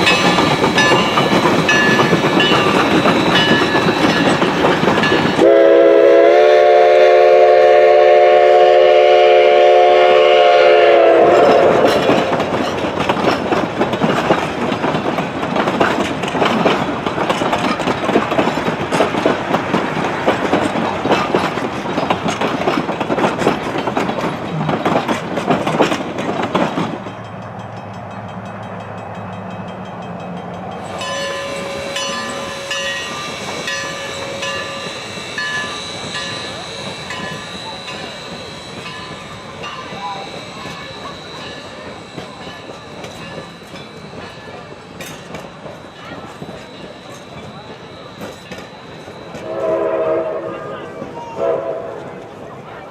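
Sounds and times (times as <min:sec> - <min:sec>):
distant train: 0:00.0 - 0:52.9
train clattering and chuffing: 0:00.0 - 0:52.9
steam locomotive whistle: 0:05.2 - 0:12.5, 0:30.8 - 0:52.4
faint steady tones: 0:27.2 - 0:51.6.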